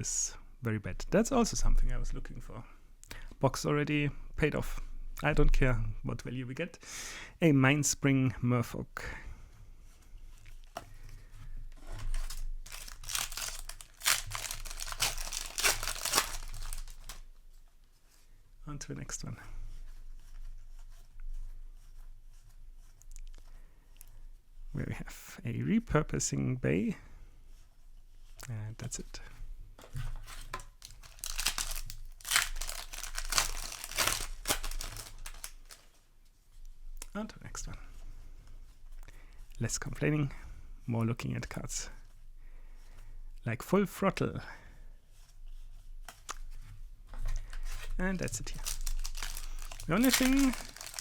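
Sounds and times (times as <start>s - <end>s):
plastic wrapper crinkling and tearing: 11.8s - 17.3s, 30.3s - 36.0s, 47.3s - 51.0s.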